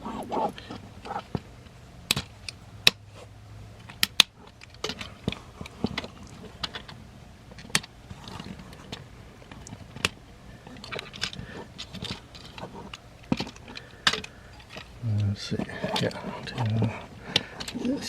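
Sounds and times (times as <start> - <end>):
plastic toy parts clicking: 2.1 - 3.0.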